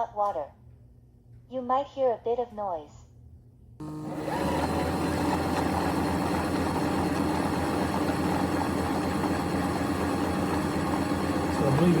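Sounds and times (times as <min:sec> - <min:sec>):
mop station mechanical hum: 0:03.8 - 0:12.0.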